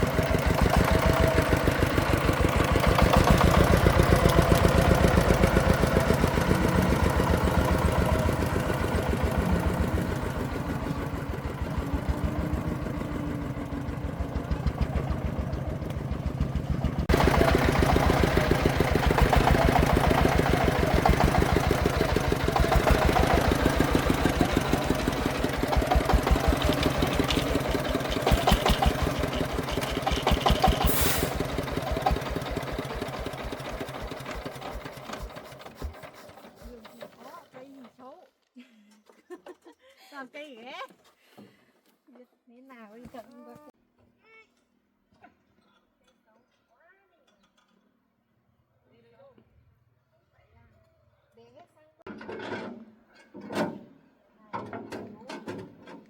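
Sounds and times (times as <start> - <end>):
single-cylinder diesel engine running: 0.0 - 37.4.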